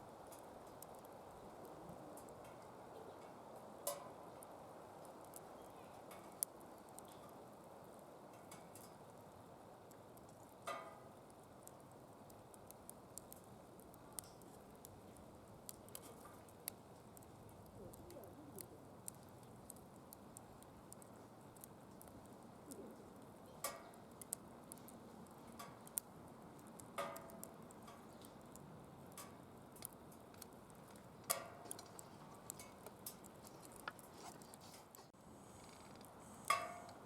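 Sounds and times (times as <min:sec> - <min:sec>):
firewood crackling and popping: 0:00.0 - 0:37.0
flame hissing: 0:08.9 - 0:37.0.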